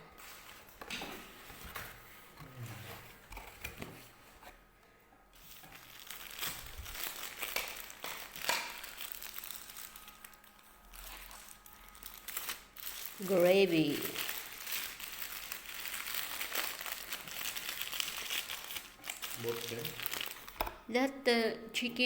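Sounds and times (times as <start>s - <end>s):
food packaging crinkling: 5.4s - 20.7s.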